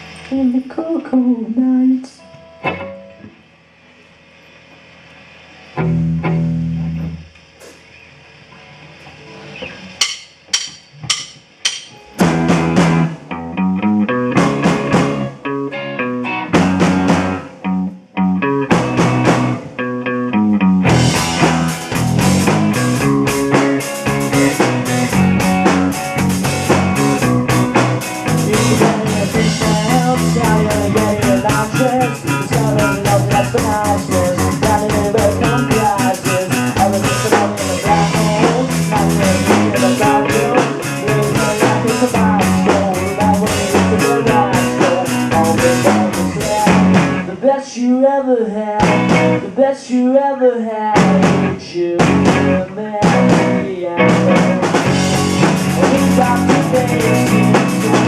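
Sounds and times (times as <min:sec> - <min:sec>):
drum kit and cymbals: 0:00.0 - 0:00.5, 0:06.9 - 0:13.2, 0:16.6 - 0:17.5, 0:18.7 - 0:19.7, 0:20.8 - 0:47.3, 0:48.8 - 0:49.4, 0:51.0 - 0:58.0
bass and guitar: 0:00.0 - 0:58.0
rock band playing: 0:09.3 - 0:47.4, 0:48.8 - 0:49.6, 0:50.9 - 0:58.0
sharp drum hits: 0:10.0 - 0:12.8.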